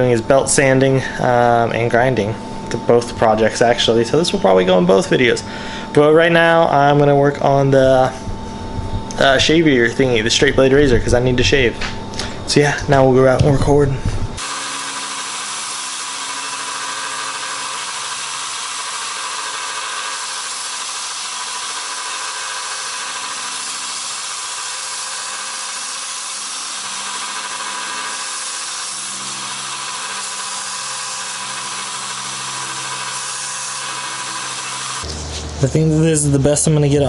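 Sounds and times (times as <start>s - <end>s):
motor hum: 9.8s - 36.6s
blade grinding on belt sander: 14.4s - 35.1s.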